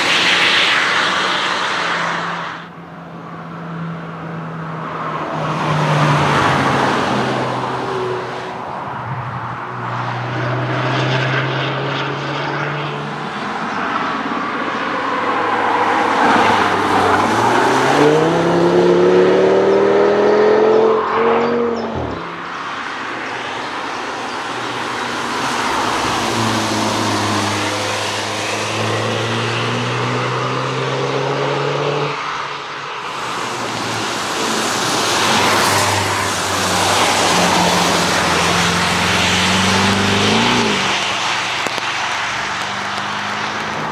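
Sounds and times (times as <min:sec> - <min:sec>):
race cars accelerating past: 0:09.8 - 0:23.6, 0:24.4 - 0:43.9.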